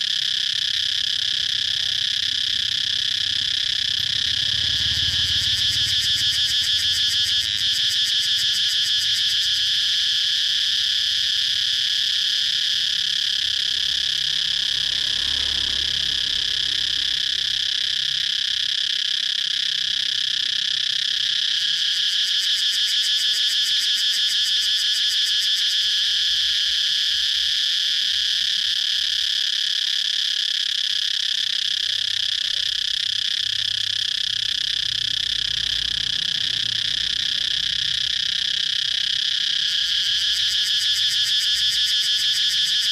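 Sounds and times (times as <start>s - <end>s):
cicadas buzzing: 0.0s - 42.9s.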